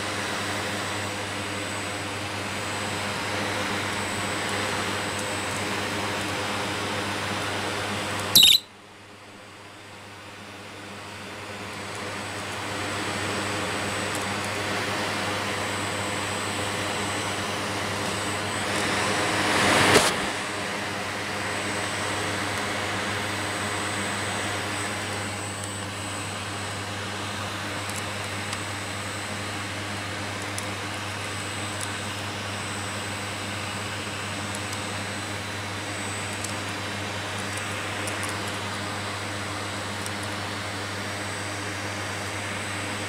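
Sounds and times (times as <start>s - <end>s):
vacuum cleaner running: 0.0s - 8.4s, 10.0s - 43.0s.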